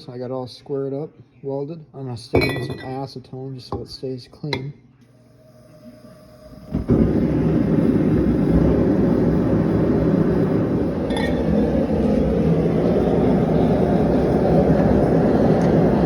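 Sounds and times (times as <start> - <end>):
forge rushing noise: 5.4 - 16.0.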